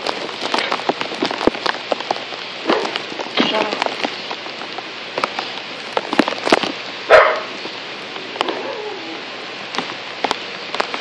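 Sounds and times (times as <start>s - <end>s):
heavy rain falling: 0.0s - 11.0s
dog barking: 2.6s - 3.0s, 7.1s - 7.6s.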